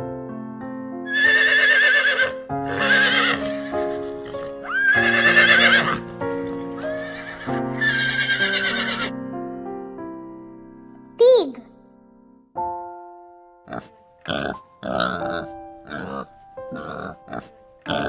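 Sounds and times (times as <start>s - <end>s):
horse neighing: 1.1s - 9.1s, 13.7s - 18.0s.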